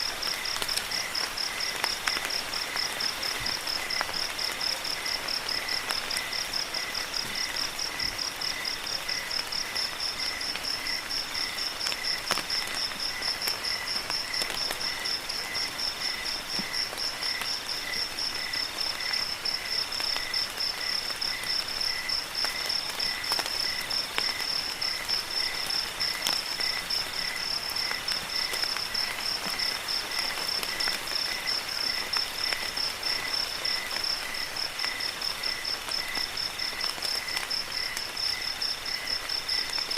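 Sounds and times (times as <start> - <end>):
crickets chirping: 0.0 - 39.9
faint hiss of rain: 0.0 - 39.9.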